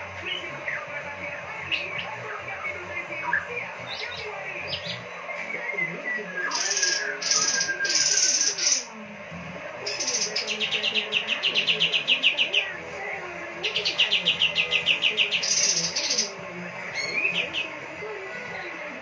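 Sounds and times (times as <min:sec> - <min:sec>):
higher-pitched bird calls: 0:06.4 - 0:08.9, 0:13.6 - 0:17.9
songbird trilling: 0:06.4 - 0:08.9, 0:09.9 - 0:12.8, 0:13.6 - 0:17.8.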